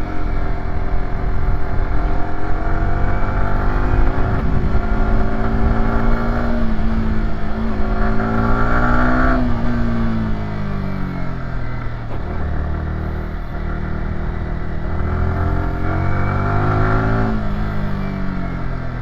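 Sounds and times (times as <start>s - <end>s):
low wind rumble: 0.0s - 12.8s
motorcycle engine under load: 0.0s - 19.0s.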